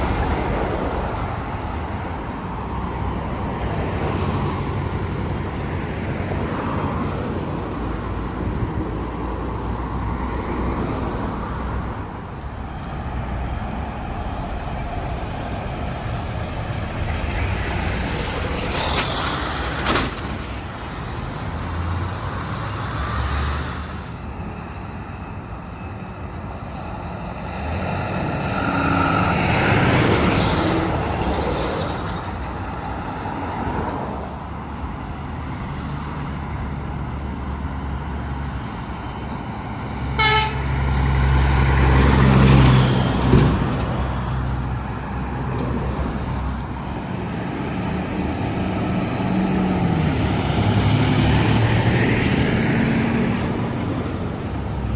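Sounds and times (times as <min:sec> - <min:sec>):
highway traffic: 0:00.0 - 0:54.9
trucks rumbling past: 0:00.0 - 0:54.9
horn toot: 0:40.2 - 0:40.7.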